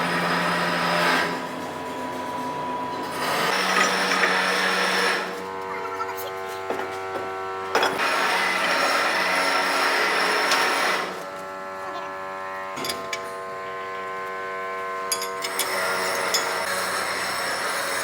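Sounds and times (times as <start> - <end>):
loud rough machine noise: 0.0 - 18.0
metalworking machine humming: 0.0 - 18.0.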